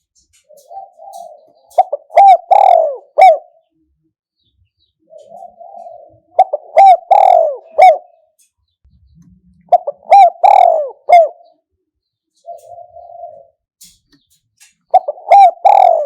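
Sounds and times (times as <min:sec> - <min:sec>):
dove cooing: 0:00.2 - 0:03.9, 0:04.9 - 0:08.4, 0:09.3 - 0:11.7, 0:12.4 - 0:13.7, 0:14.9 - 0:16.0.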